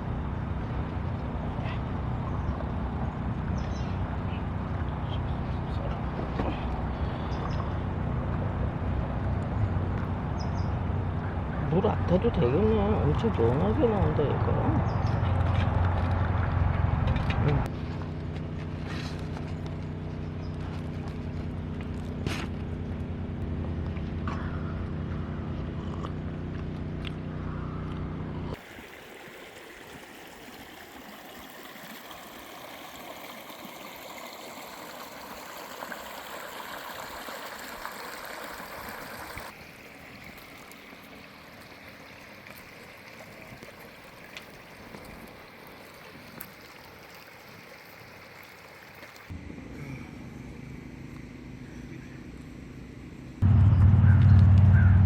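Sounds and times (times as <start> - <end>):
low hum: 0.0 - 28.6, 49.3 - 55.0.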